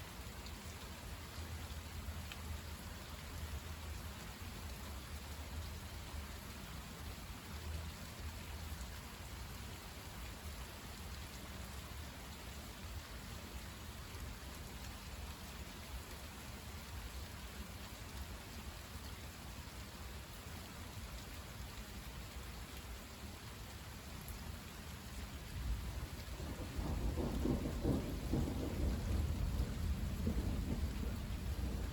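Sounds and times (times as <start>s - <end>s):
steady rain falling: 0.0s - 31.9s
low thunder rumble: 25.6s - 31.9s.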